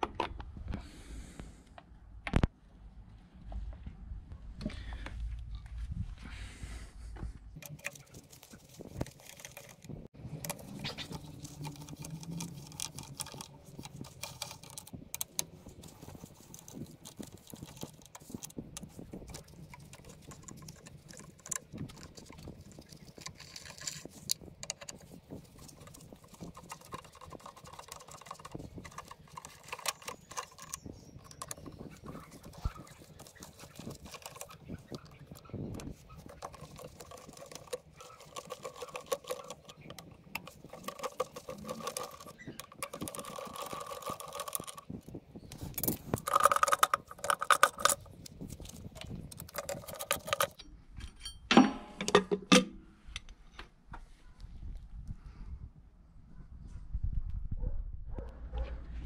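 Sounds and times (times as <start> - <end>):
metal tools clinking: 49.7 - 52.6.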